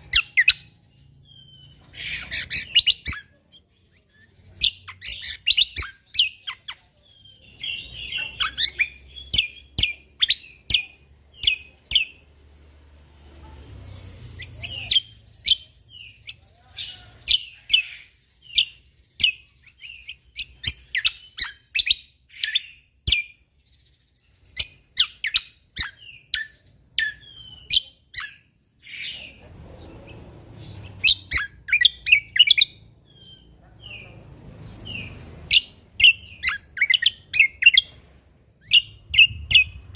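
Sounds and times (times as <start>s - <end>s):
bird singing high chirps: 0.0s - 12.5s, 13.8s - 39.9s.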